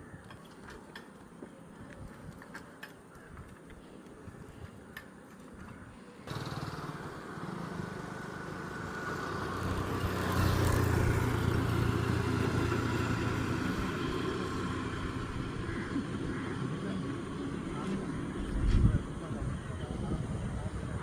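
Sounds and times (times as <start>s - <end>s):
vehicle engine humming: 6.2s - 19.9s.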